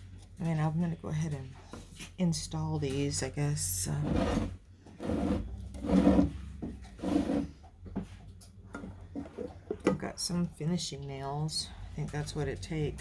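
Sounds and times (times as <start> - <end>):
rasping on wooden trim: 4.0 - 7.6.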